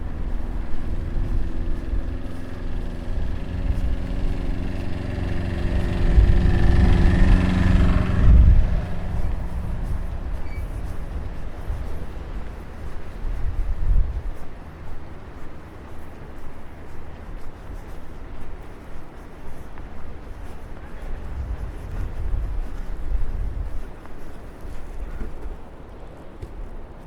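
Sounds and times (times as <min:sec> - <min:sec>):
low rumble: 0:00.0 - 0:17.3
vehicle engine running: 0:00.0 - 0:25.8.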